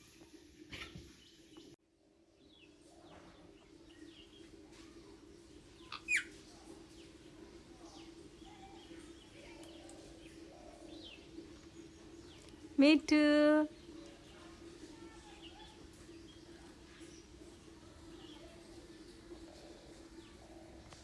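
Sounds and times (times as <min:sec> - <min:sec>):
birds chirping: 0:02.4 - 0:21.0.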